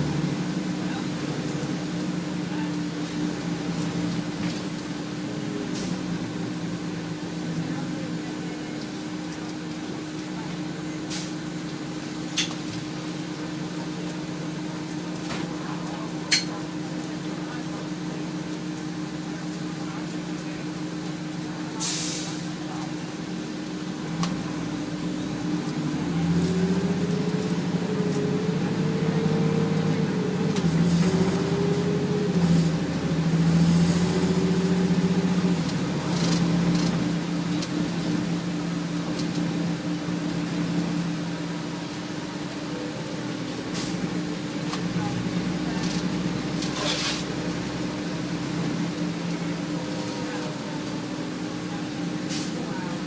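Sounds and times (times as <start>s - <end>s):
bus diesel engine: 0.0s - 53.0s
hiss of air: 21.8s - 22.5s.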